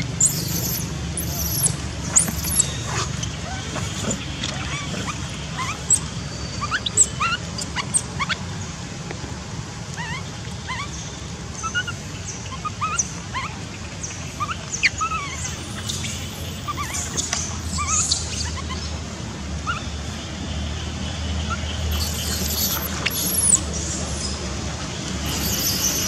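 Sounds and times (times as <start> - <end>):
baby monkey crying: 0.0 - 2.8, 3.4 - 8.4, 14.4 - 18.9, 21.9 - 23.7, 25.2 - 26.0.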